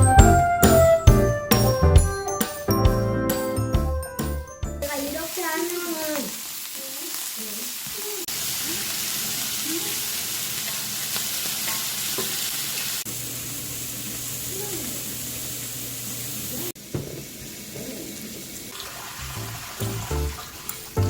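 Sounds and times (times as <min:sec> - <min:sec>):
food sizzling in a frying pan: 0:04.8 - 0:21.0.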